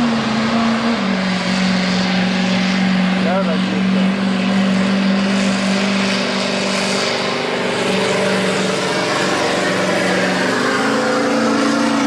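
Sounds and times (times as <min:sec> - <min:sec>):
diesel truck engine revving hard: 0:00.0 - 0:12.0.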